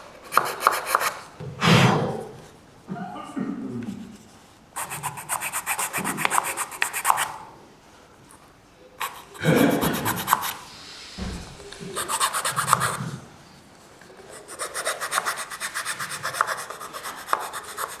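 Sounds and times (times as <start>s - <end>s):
file rasping on wood: 0.2s - 1.3s, 4.8s - 7.4s, 9.0s - 13.2s, 14.3s - 18.0s.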